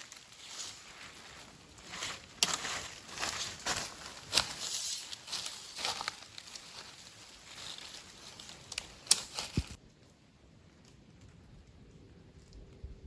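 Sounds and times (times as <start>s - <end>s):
dry leaves crunching and rustling: 0.0s - 9.8s
twigs cracking: 0.0s - 9.8s.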